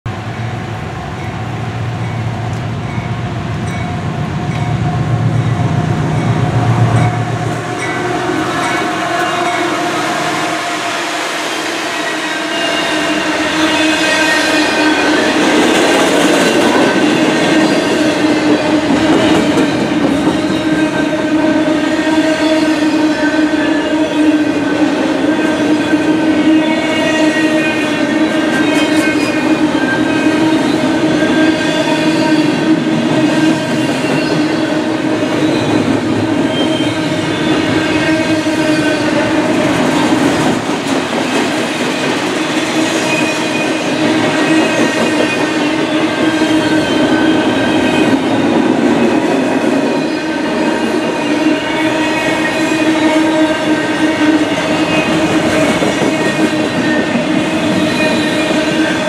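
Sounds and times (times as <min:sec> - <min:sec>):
diesel locomotive engine rumble: 0:00.1 - 0:22.2
train wheels ringing on rails: 0:00.1 - 0:59.0.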